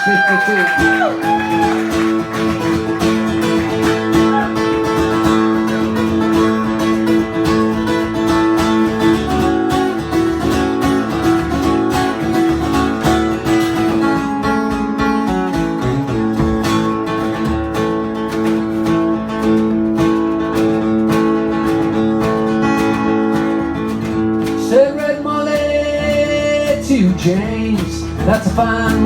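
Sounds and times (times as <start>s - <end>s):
acoustic guitar strumming and picking: 0.5s - 29.0s.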